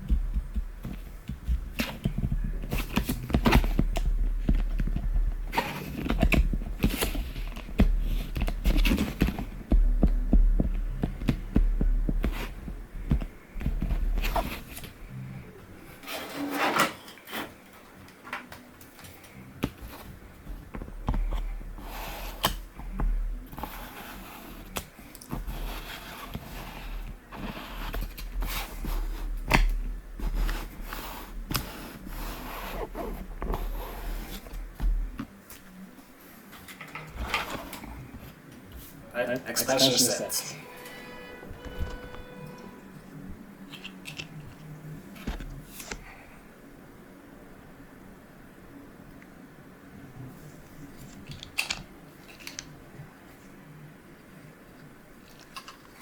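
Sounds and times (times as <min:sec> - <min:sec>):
plastic parts clicking and knocking: 0:00.0 - 0:14.9.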